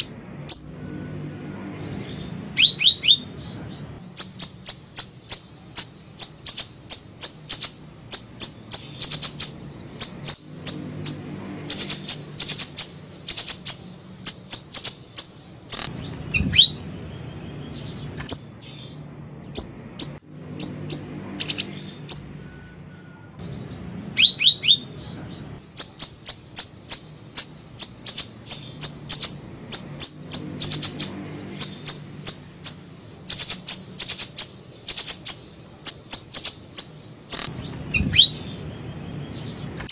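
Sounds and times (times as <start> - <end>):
high thin bird chirps: 0.0 - 39.9.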